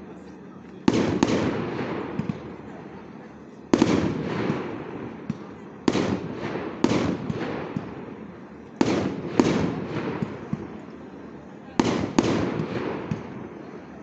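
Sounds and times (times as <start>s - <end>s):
small firework pops: 0.2s - 2.7s, 3.7s - 8.0s, 11.8s - 13.4s.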